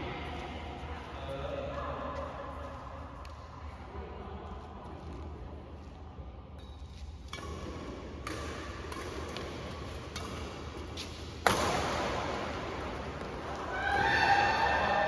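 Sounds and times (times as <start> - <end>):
rackets striking shuttlecock: 7.3 - 13.7.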